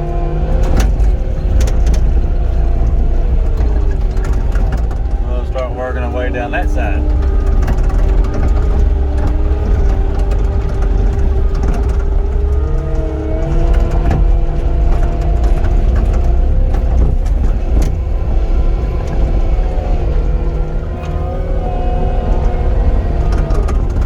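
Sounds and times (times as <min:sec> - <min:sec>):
loader diesel engine under load: 0:00.0 - 0:24.0.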